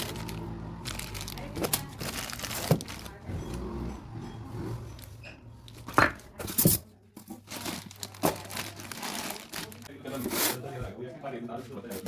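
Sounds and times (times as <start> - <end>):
packaging torn and crinkled: 7.5 - 9.9.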